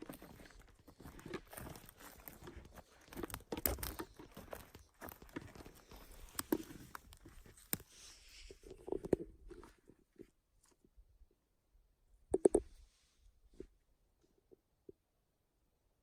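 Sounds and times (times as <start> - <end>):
footsteps on forest floor: 0.0 - 9.8
twigs snapping: 1.6 - 5.2.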